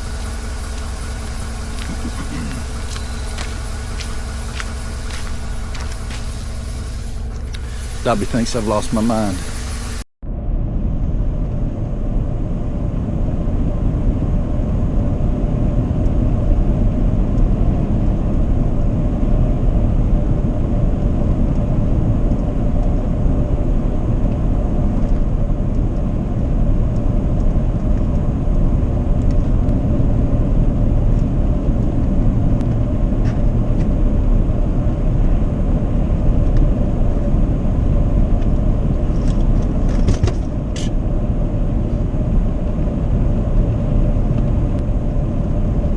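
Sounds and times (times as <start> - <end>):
truck road and engine rumble: 0.0 - 10.1.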